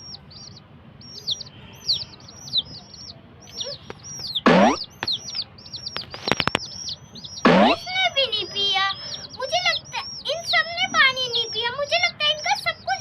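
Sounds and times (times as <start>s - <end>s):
baby chicks peeping: 0.0s - 13.0s
sharp clicks: 3.5s - 7.8s
loud sweep falling in pitch: 4.5s - 4.9s, 7.5s - 7.8s.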